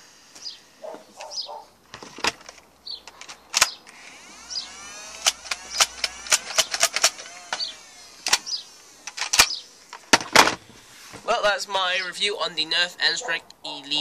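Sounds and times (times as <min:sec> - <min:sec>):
electric flywheel motors whirring: 0:00.0 - 0:01.3, 0:03.6 - 0:11.2
sharp plastic clicks and clacks: 0:05.1 - 0:10.6.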